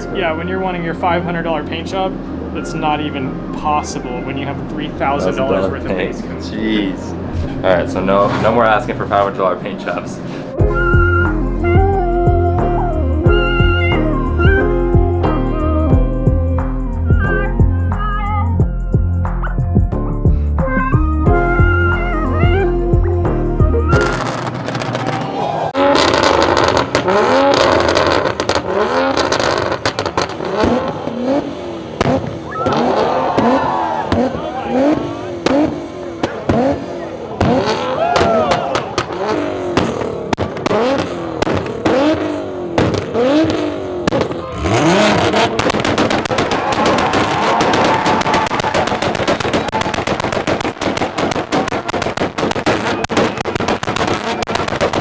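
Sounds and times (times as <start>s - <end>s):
car engine revving: 0.0s - 18.6s, 20.6s - 55.0s
exhaust cracks and pops: 24.0s - 55.0s.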